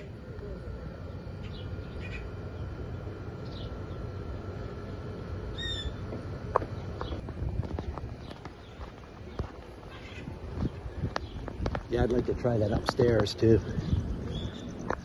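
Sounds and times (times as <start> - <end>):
birds chirping: 0.0 - 15.0
loud full bird call: 1.4 - 2.4, 5.5 - 6.0.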